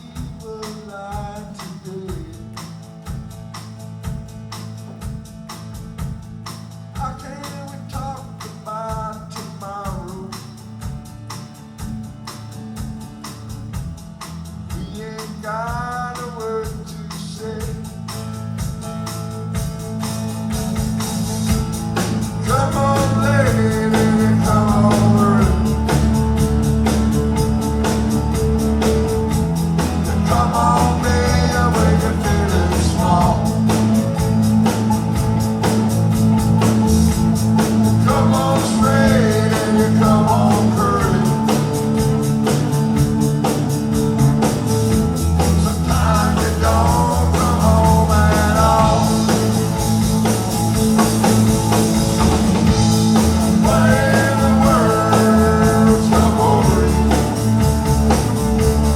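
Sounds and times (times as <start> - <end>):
bass: 0.0 - 58.9
drums: 0.0 - 58.9
strummed guitar chords: 17.7 - 58.9.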